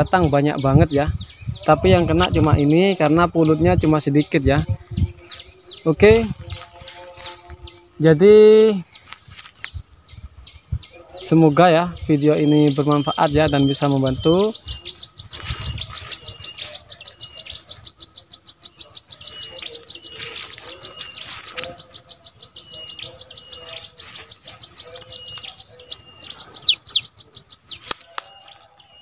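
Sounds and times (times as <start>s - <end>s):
bird trill: 0.0s - 29.0s
high bird chirps: 0.0s - 29.0s.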